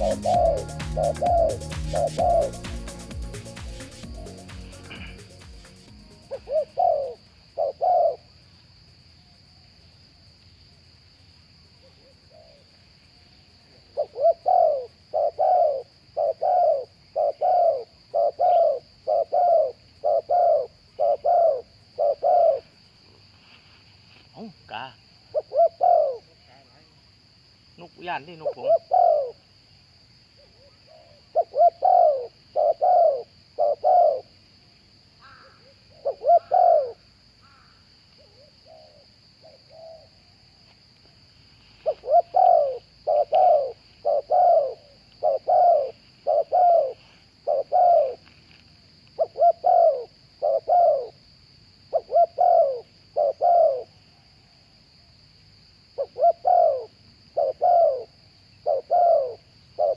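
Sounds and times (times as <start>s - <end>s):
doves cooing: 0.0s - 3.3s, 4.0s - 8.2s, 14.0s - 22.6s, 25.4s - 26.2s, 28.7s - 29.4s, 31.0s - 34.2s, 35.3s - 37.0s, 41.9s - 48.2s, 49.2s - 51.1s, 52.0s - 53.9s, 56.0s - 59.9s.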